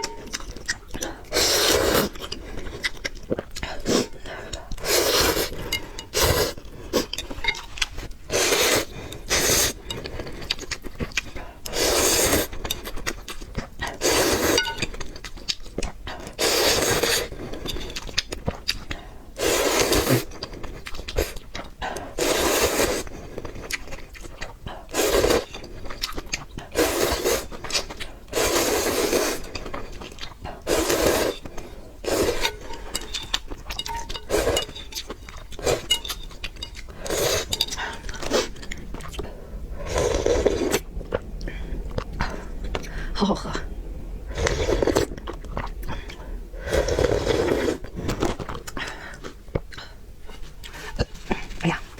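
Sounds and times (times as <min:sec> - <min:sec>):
wet chewing: 0:00.0 - 0:51.9
noodle soup slurping: 0:01.3 - 0:03.0, 0:03.8 - 0:07.2, 0:07.8 - 0:13.0, 0:13.8 - 0:14.8, 0:16.3 - 0:18.2, 0:19.4 - 0:20.4, 0:22.1 - 0:24.0, 0:24.8 - 0:43.1, 0:44.3 - 0:49.3.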